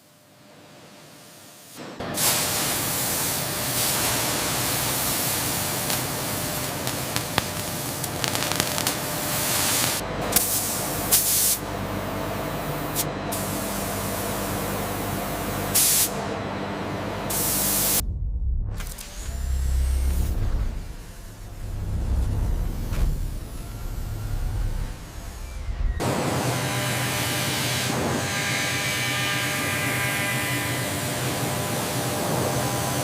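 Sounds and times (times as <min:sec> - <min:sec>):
laser cutter hissing: 0:02.2 - 0:11.7, 0:12.3 - 0:16.2, 0:17.3 - 0:18.0.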